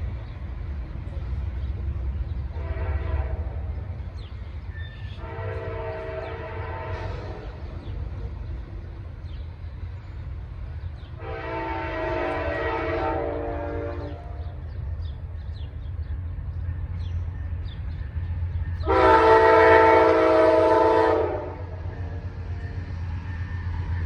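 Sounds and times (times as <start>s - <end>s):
train rumble: 0.0s - 24.0s
train air horn blasts: 2.5s - 3.9s, 5.0s - 7.7s, 11.2s - 14.6s, 18.8s - 21.9s.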